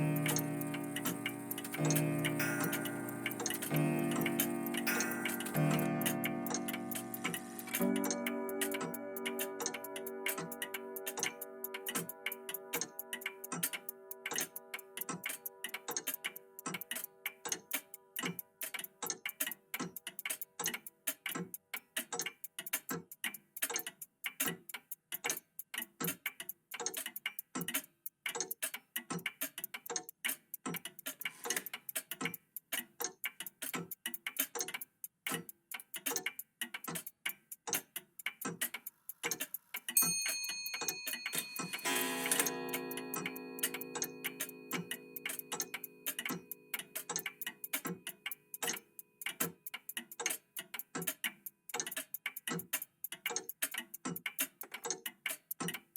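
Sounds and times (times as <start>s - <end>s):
clock chime ringing: 0.0s - 10.6s, 40.0s - 46.8s
clocks ticking: 0.0s - 55.9s.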